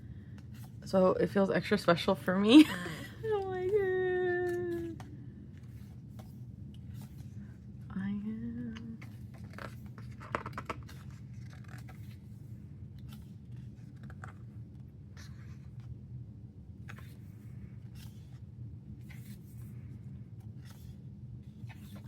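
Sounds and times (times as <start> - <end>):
steady low hum: 0.0 - 22.0
pages rustling: 3.1 - 7.7, 8.6 - 16.1, 16.7 - 22.0.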